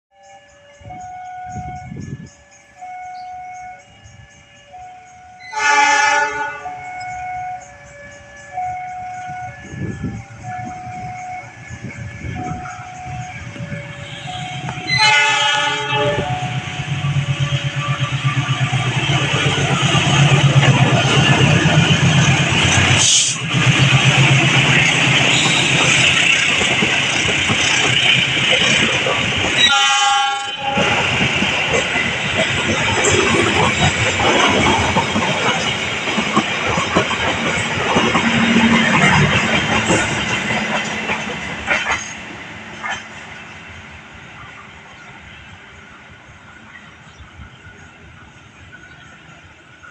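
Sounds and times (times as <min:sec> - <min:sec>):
two-tone crossing alarm: 0:00.1 - 0:42.0
train horn blast: 0:03.1 - 0:07.7, 0:08.6 - 0:17.2, 0:21.5 - 0:23.5, 0:24.5 - 0:26.2, 0:29.5 - 0:31.2.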